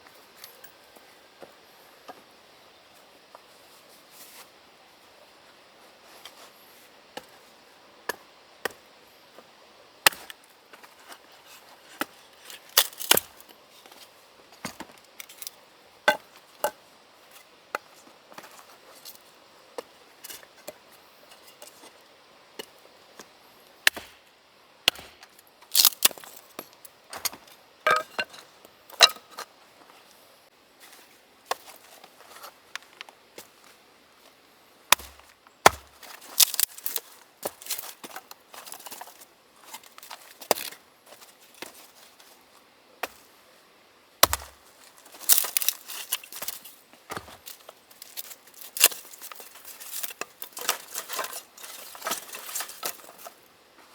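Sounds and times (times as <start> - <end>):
axe chopping firewood: 10.1 - 10.4, 12.8 - 13.3, 23.8 - 26.3, 27.2 - 29.4, 34.9 - 37.6, 44.2 - 44.6.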